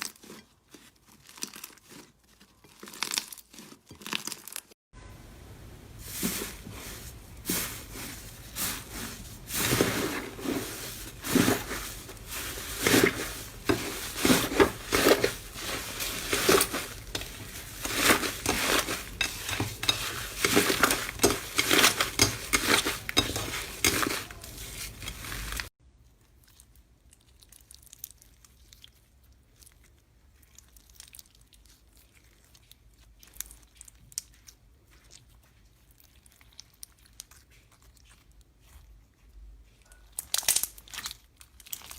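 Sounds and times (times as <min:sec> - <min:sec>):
slime squishing crackles and pops: 0:40.1 - 0:41.9.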